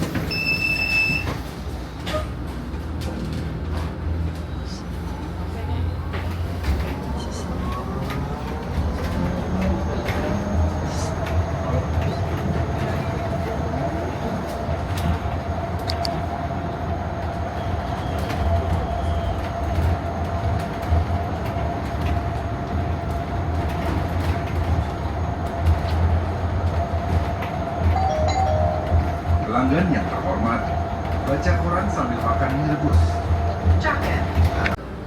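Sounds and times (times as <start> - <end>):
bus engine rumble: 0.0 - 35.0.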